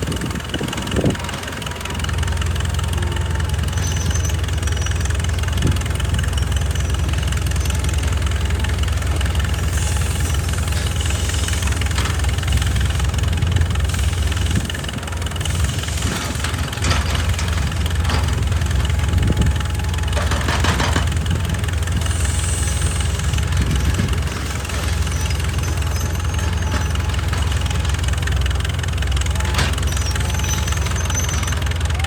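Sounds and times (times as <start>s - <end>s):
excavator diesel engine running: 0.0s - 32.0s
knocks and clanks: 16.0s - 21.8s, 23.6s - 31.8s.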